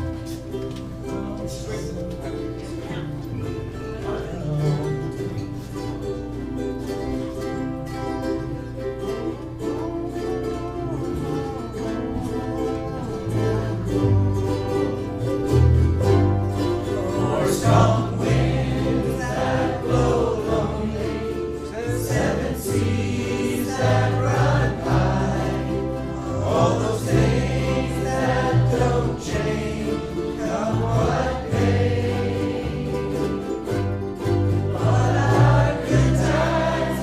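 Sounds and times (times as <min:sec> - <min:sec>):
strummed ukuleles: 0:00.0 - 0:37.0
group singing in unison: 0:10.2 - 0:15.3, 0:16.5 - 0:37.0.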